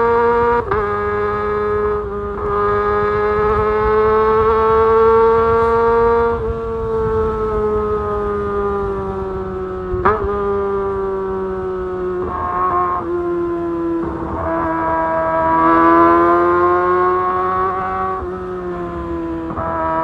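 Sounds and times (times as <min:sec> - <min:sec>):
motorcycle engine revving high: 0:00.0 - 0:20.0.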